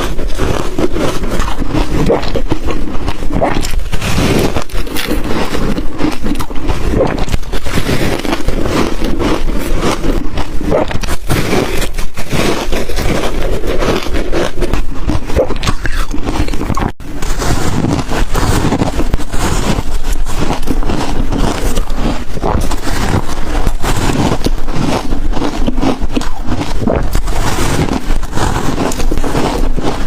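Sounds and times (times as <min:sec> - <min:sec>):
ice being chewed: 0:00.0 - 0:30.0.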